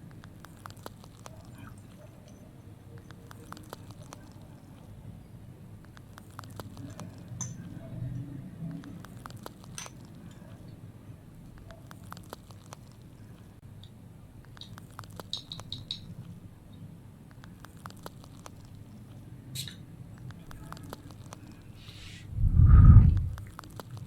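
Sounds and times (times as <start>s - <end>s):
small water drips and clicks: 0.0s - 4.9s, 5.8s - 7.8s, 8.6s - 10.7s, 11.4s - 21.6s, 23.3s - 24.0s
low rumble: 22.2s - 23.4s.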